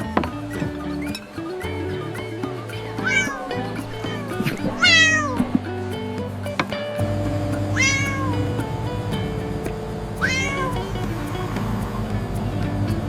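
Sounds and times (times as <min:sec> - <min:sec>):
background music: 0:00.0 - 0:13.0
cat meowing: 0:03.0 - 0:05.6, 0:07.7 - 0:08.5, 0:10.2 - 0:10.9.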